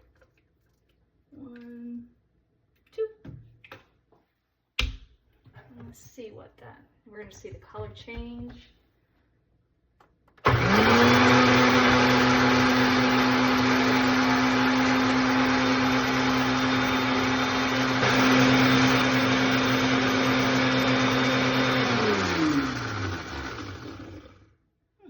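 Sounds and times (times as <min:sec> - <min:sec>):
blender motor running: 0:10.5 - 0:24.4.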